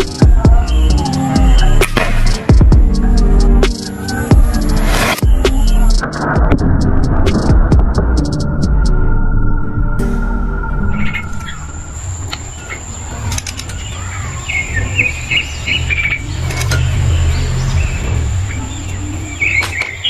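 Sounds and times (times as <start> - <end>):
small birds chirping: 0.0 - 6.1, 10.8 - 20.0
low hum: 0.0 - 13.0
high-pitched whine: 0.0 - 13.2.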